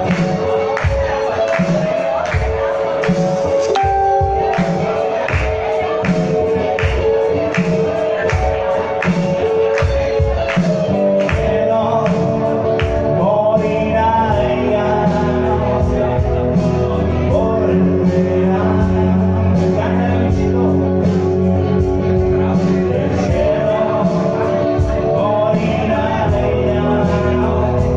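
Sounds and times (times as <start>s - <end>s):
person singing: 0.0s - 27.9s
rock band playing: 0.0s - 27.9s
drum beat: 3.8s - 11.6s.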